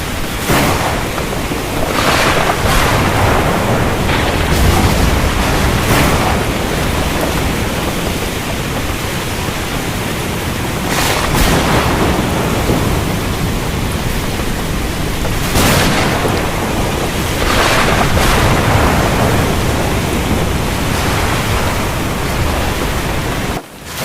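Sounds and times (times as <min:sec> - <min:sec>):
rolling thunder: 0:00.0 - 0:23.6
heavy rain falling: 0:00.0 - 0:24.0.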